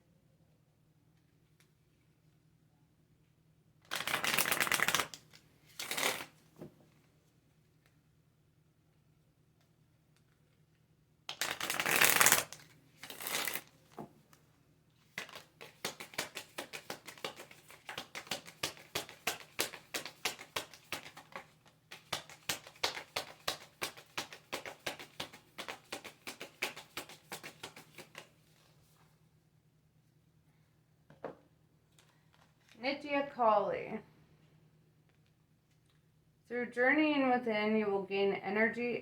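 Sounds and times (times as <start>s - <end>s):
cards shuffling swishes: 3.9s - 6.4s, 11.3s - 14.0s, 15.1s - 29.0s.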